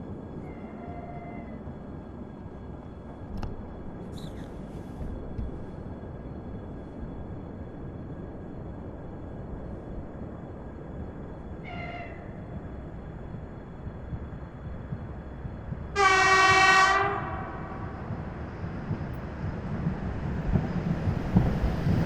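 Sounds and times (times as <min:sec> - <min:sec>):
train horn: 0:00.6 - 0:01.6, 0:11.6 - 0:12.2, 0:15.9 - 0:18.0.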